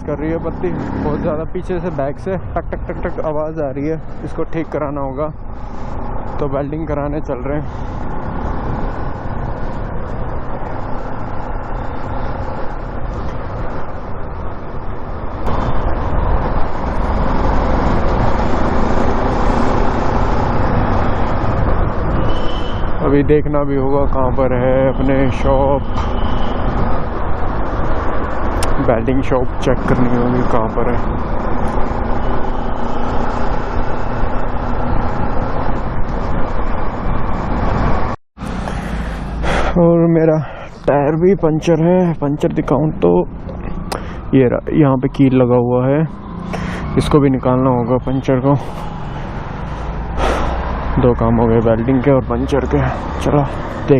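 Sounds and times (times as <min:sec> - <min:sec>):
motorcycle engine: 0:00.0 - 0:01.5, 0:29.6 - 0:39.8, 0:46.1 - 0:47.2, 0:48.7 - 0:51.2
wind noise: 0:00.0 - 0:39.8
road noise: 0:00.0 - 0:53.9.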